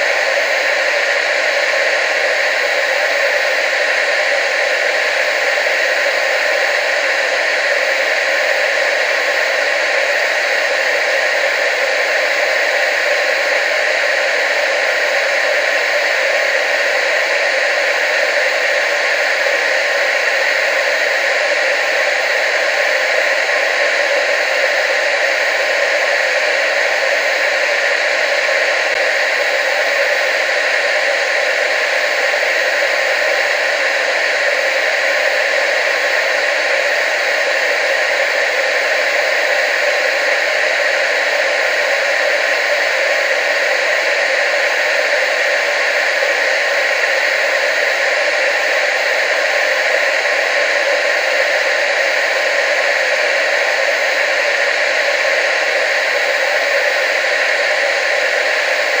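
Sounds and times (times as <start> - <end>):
television static hiss: 0.0 - 59.0.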